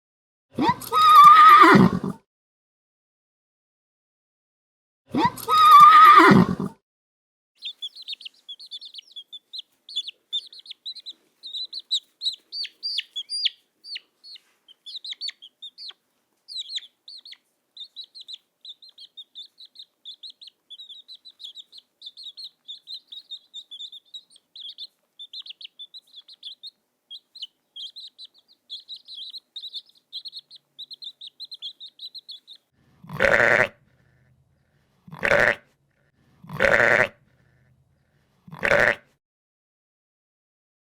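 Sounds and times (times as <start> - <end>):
small birds chirping: 7.6 - 38.9
sheep bleating: 33.0 - 33.8, 35.1 - 35.6, 36.4 - 37.2, 38.5 - 39.0.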